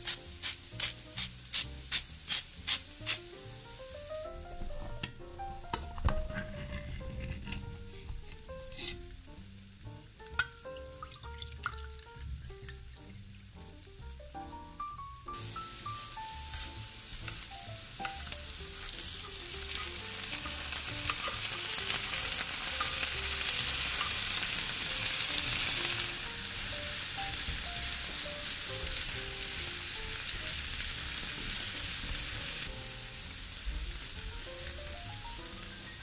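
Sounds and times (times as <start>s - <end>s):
spatula stirring in a pan: 0.0s - 4.0s, 5.8s - 9.2s, 16.2s - 29.9s
food sizzling in a frying pan: 0.0s - 36.0s.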